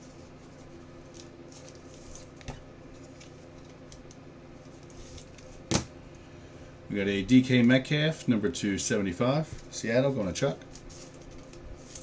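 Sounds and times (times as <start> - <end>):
low steady hum: 0.0 - 12.0
cards rustling and tapping: 0.5 - 5.9.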